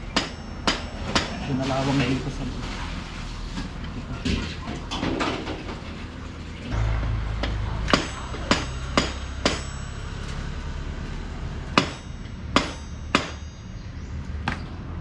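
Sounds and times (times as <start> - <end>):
hammer striking metal: 0.0 - 1.4, 6.8 - 10.6, 11.7 - 13.9.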